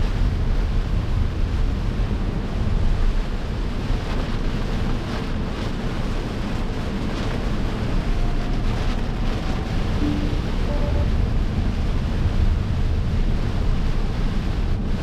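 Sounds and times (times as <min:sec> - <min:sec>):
steady rain: 0:00.0 - 0:15.0
tyre noise on wet road: 0:00.0 - 0:15.0.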